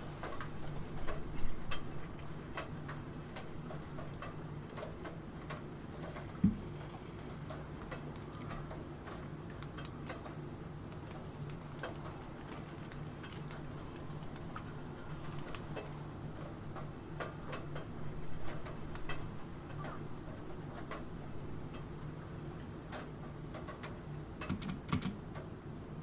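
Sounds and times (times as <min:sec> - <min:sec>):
rain: 0:00.0 - 0:26.0
keyboard key clicks: 0:24.4 - 0:25.2.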